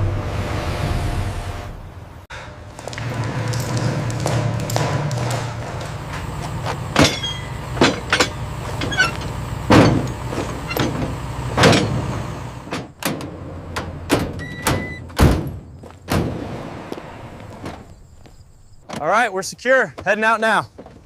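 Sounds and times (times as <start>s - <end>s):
vehicle engine humming: 0.0s - 18.8s
sharp knocks and door clunks: 3.3s - 12.1s, 12.7s - 16.4s.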